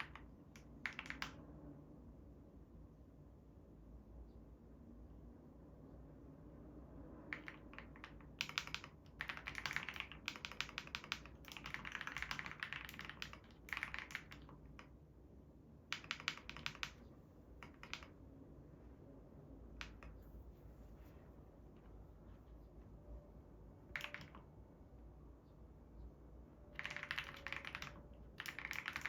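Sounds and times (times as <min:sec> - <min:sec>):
keyboard key clicks: 0:00.0 - 0:01.4, 0:07.3 - 0:14.9, 0:15.9 - 0:18.2, 0:23.9 - 0:24.5, 0:26.8 - 0:29.0.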